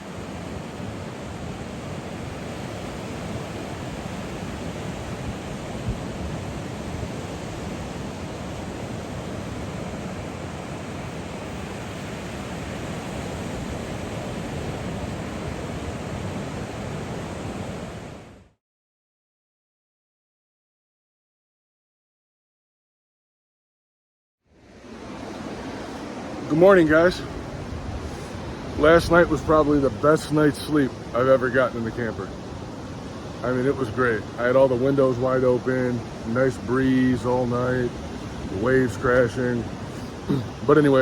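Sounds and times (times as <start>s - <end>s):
ocean surf washing onto beach: 0.0s - 18.5s, 24.5s - 41.0s
wind on microphone: 0.0s - 18.5s, 24.8s - 31.1s.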